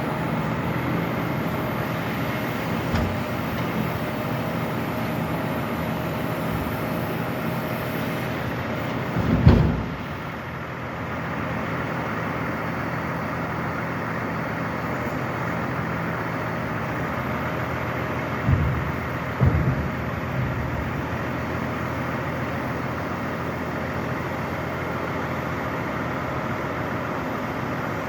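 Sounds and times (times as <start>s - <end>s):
truck engine running: 0.0s - 28.0s
loud thump: 2.8s - 3.9s, 8.9s - 10.4s, 18.4s - 21.2s
small knocks: 2.8s - 3.9s, 18.4s - 21.0s.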